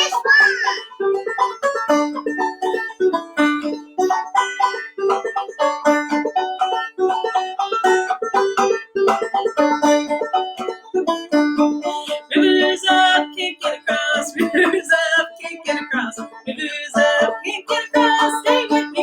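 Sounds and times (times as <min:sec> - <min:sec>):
banjo playing: 0:00.0 - 0:19.0.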